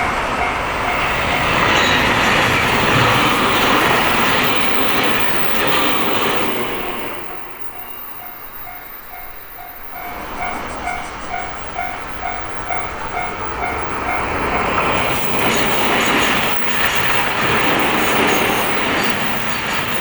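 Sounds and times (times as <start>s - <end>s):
level crossing bell ringing: 0.0s - 14.8s
train wheels clacking on rails: 0.0s - 20.0s.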